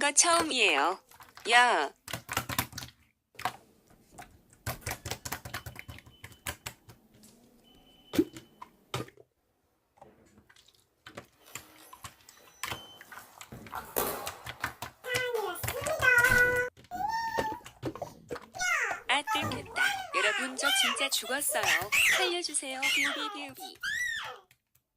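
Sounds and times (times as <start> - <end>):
typing on computer keyboard: 2.0 - 3.6, 4.5 - 7.0.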